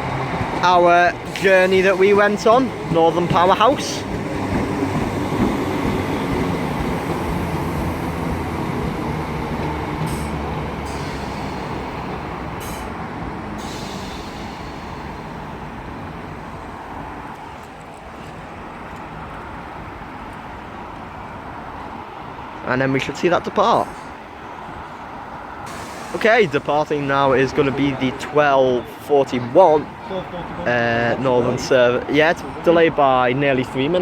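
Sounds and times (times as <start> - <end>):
train rumbling to a stop: 0.0 - 17.8, 23.7 - 29.0
short hisses: 10.0 - 13.0, 13.6 - 15.4, 25.7 - 26.3.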